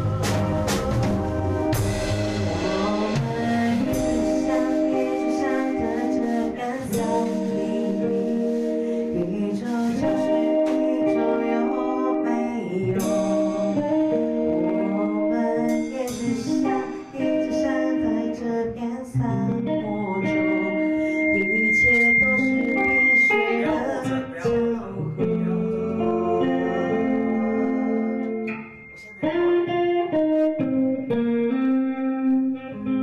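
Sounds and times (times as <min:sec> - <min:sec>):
rock band playing: 0:00.0 - 0:18.4, 0:19.2 - 0:33.0
person singing: 0:00.0 - 0:33.0
thin high tone: 0:19.7 - 0:32.4.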